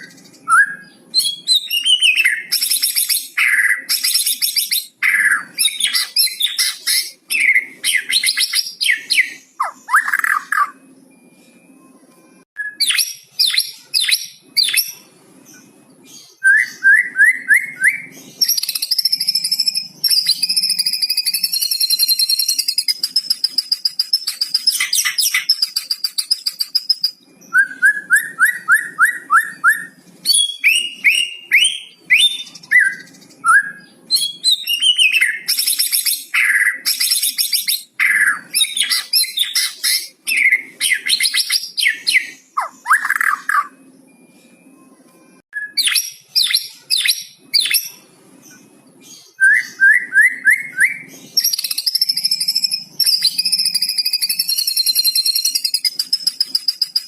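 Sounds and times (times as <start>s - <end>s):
bird singing sharp whistles: 49.2s - 57.0s.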